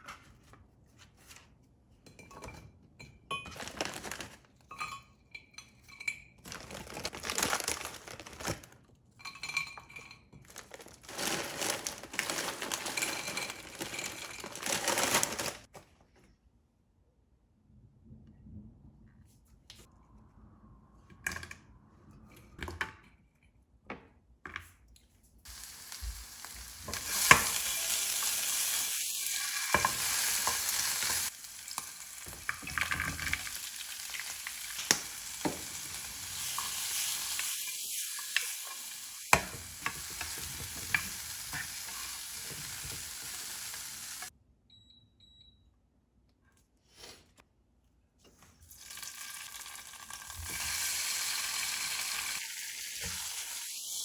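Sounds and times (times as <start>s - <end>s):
food sizzling in a pan: 25.5s - 44.3s, 48.8s - 54.0s.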